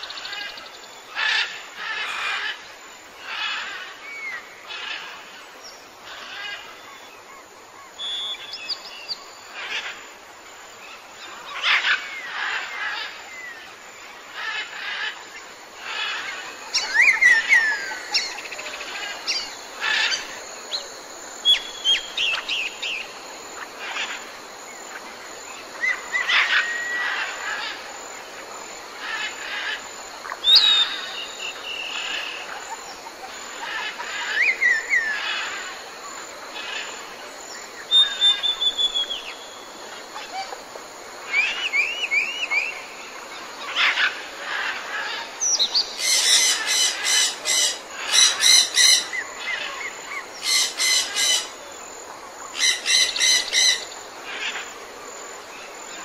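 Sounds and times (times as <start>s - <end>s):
background hiss: 0.0s - 56.0s
harsh repeated bird calls: 43.7s - 51.6s.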